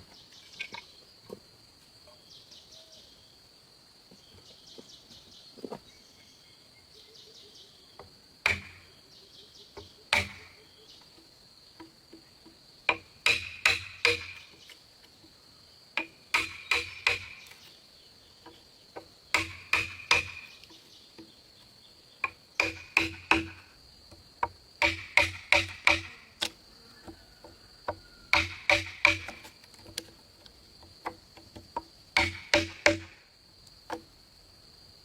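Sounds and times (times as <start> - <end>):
high insect buzz: 7.8 - 35.0
hammer striking timber: 8.4 - 8.8, 10.1 - 10.5, 12.9 - 14.4, 16.0 - 17.5, 19.0 - 20.6, 22.2 - 23.7, 24.4 - 26.5, 27.9 - 29.5, 31.0 - 33.2.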